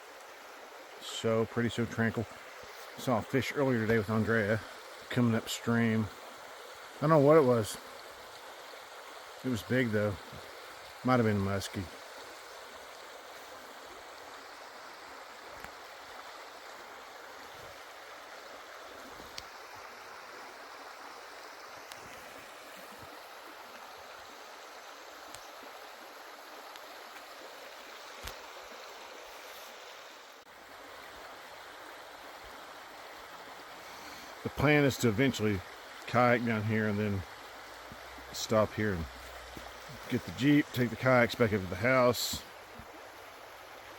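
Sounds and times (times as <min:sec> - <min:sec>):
river water rushing: 0:00.0 - 0:43.9
faint clicks: 0:19.2 - 0:19.5, 0:21.8 - 0:22.2.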